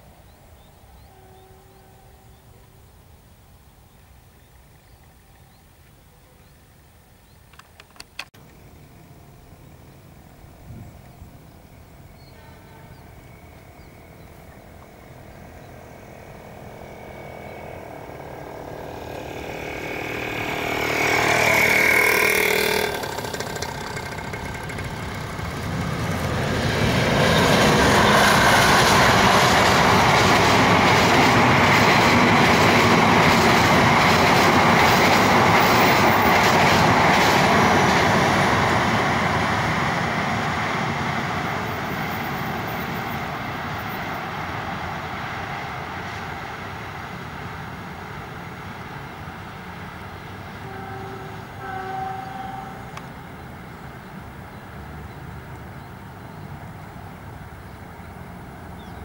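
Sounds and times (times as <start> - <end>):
locomotive approaching: 0.0 - 59.0
wheels rushing on rail: 0.0 - 59.0
train horn: 1.0 - 2.7, 12.2 - 15.3, 16.6 - 26.3, 50.4 - 53.2.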